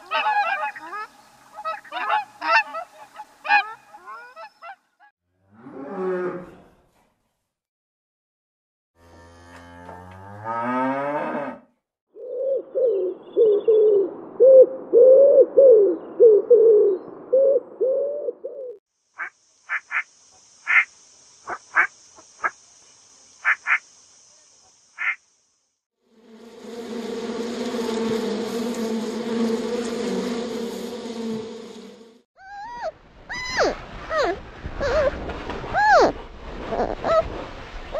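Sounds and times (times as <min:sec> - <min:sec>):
faint steady hiss: 0:18.9 - 0:25.8
buzzing: 0:26.1 - 0:32.2
low rising animal call: 0:32.4 - 0:37.3.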